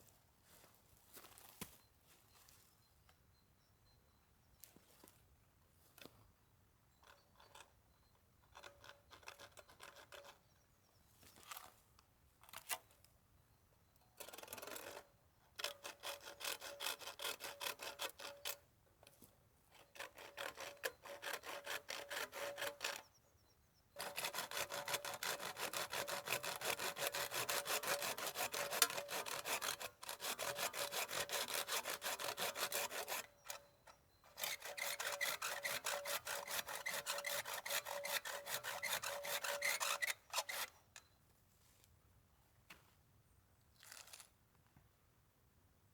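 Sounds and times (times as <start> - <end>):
hand saw cutting wood: 15.6 - 18.6, 19.8 - 23.0, 24.0 - 40.9.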